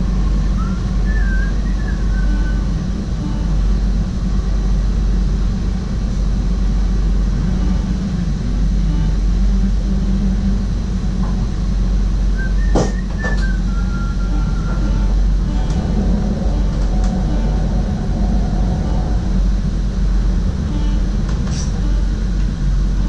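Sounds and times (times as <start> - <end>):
train low rumble: 0.0 - 23.0
high whistling tones: 12.4 - 15.1.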